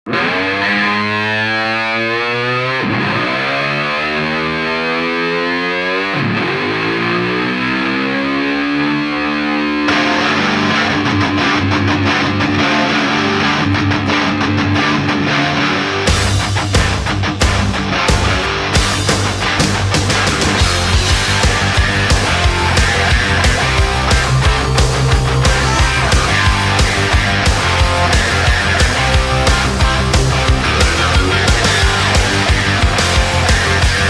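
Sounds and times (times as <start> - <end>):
motocross bike accelerating: 6.5 - 10.5, 20.0 - 34.0.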